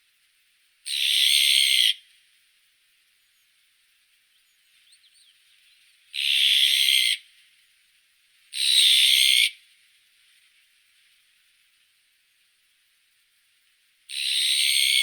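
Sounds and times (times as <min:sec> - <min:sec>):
magpie harsh scratchy calls: 0:00.9 - 0:02.0, 0:06.2 - 0:07.2
faint high chirps: 0:03.1 - 0:03.6, 0:04.2 - 0:06.0.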